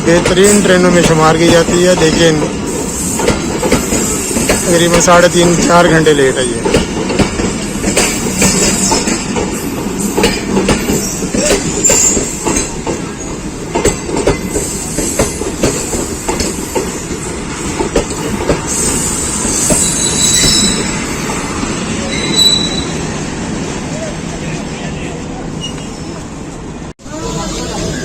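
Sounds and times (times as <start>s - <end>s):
wheels clacking on rail joints: 0.0s - 21.4s
train coaches rumbling past: 0.0s - 28.0s
high wheel squeal: 10.9s - 12.4s, 18.7s - 21.3s, 22.0s - 23.1s.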